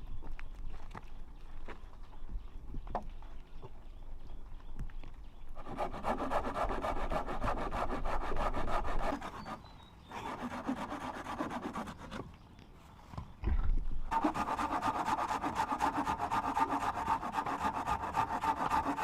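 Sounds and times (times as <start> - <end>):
rapid scraping strokes: 5.6 - 12.2, 14.1 - 19.0.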